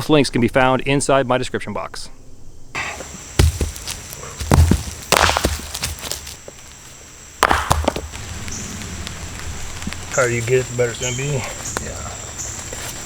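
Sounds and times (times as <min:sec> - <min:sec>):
high insect buzz: 0:02.7 - 0:13.0
dull knocks of tent sticks: 0:02.8 - 0:06.7, 0:07.4 - 0:08.3
rustling crunches of gear: 0:02.8 - 0:07.1, 0:07.9 - 0:13.0.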